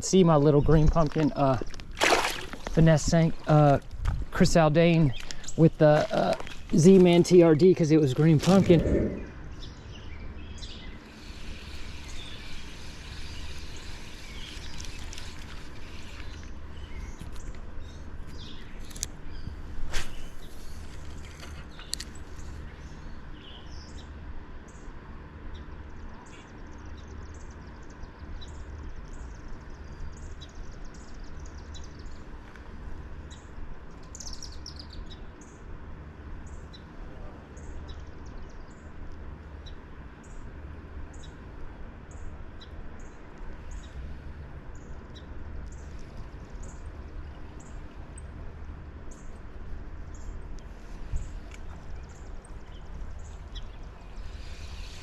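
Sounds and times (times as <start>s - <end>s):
steady low rumble: 0.0s - 12.4s.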